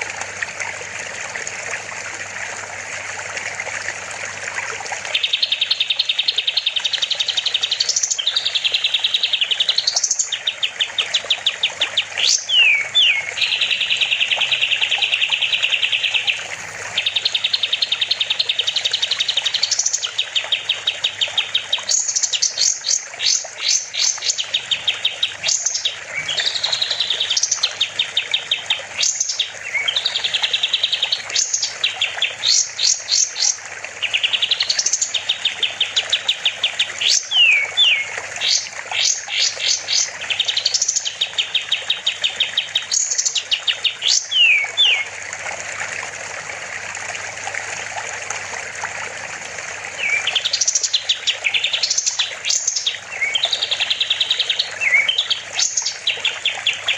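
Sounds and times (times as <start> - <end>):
songbird singing trills: 5.1 - 45.1, 50.0 - 56.9.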